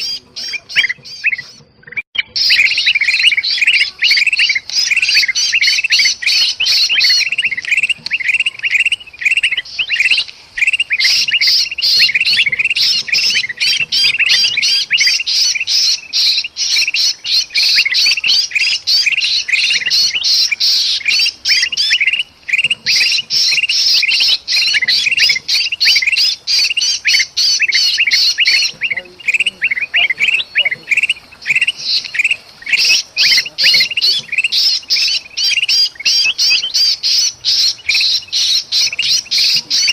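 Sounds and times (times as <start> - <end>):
bird distress calls: 0.0 - 39.9
flock of birds chirping and squawking: 0.0 - 39.9.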